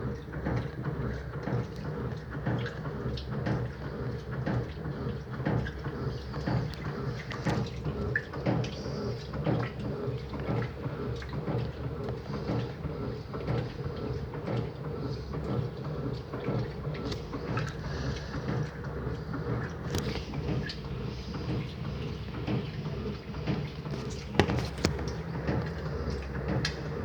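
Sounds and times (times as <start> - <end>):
washing machine motor hum: 0.0 - 27.0
knocks and clicks from drum: 23.5 - 25.8.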